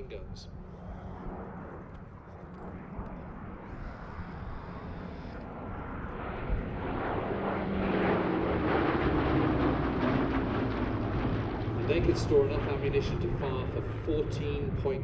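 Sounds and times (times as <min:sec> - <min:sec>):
aircraft piston engines: 0:00.0 - 0:15.0.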